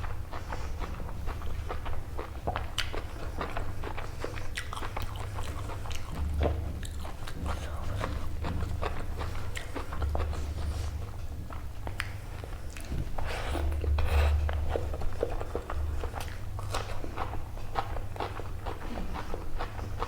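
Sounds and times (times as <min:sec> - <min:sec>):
steady low hum: 0:00.0 - 0:20.0
wet chewing and biting: 0:00.0 - 0:20.0.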